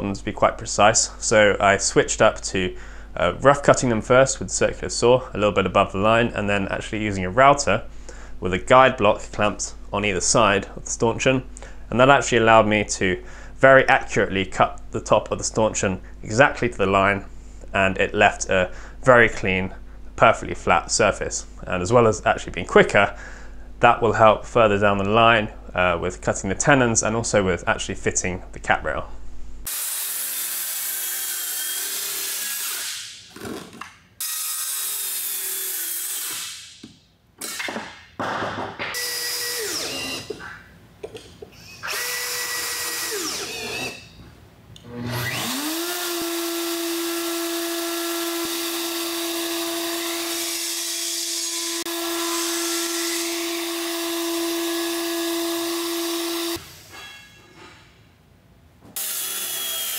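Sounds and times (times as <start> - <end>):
power tools cutting wood: 29.7 - 36.6, 38.9 - 40.6, 41.8 - 44.1, 44.8 - 56.9, 59.0 - 59.9
router whining: 29.7 - 36.6, 38.9 - 40.6, 41.6 - 44.1, 44.8 - 56.9, 59.0 - 59.9
cordless drill driving screws: 39.0 - 40.4, 41.8 - 44.1, 45.1 - 51.0, 51.8 - 56.6.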